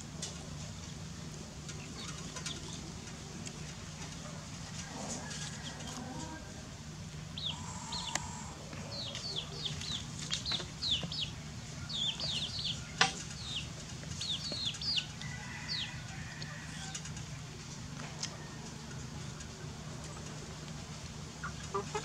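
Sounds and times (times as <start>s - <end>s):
birds chirping: 7.2s - 16.1s.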